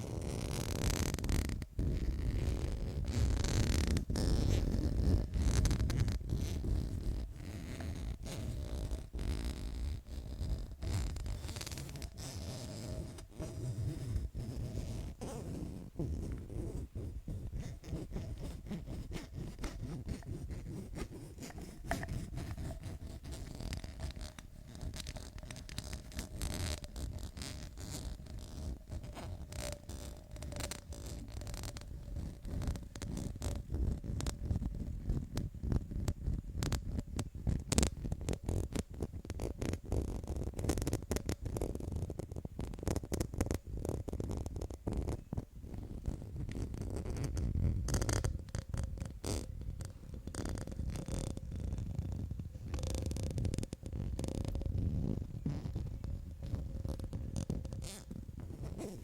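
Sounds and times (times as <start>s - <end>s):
fingers scratching and tapping: 0.0s - 59.0s
quick irregular tapping: 17.5s - 31.8s.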